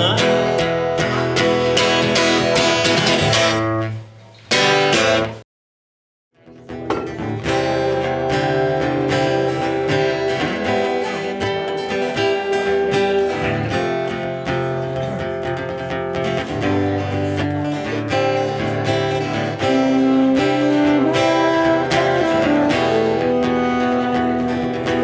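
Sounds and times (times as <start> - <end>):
guitar strumming: 0.0 - 5.4, 6.5 - 25.0.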